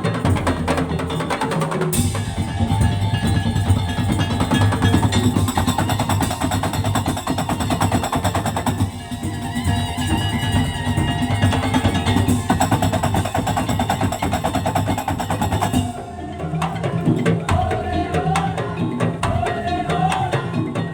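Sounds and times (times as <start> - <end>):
percussion ensemble on slit drums: 0.0 - 20.9
pitched melody: 1.9 - 20.9.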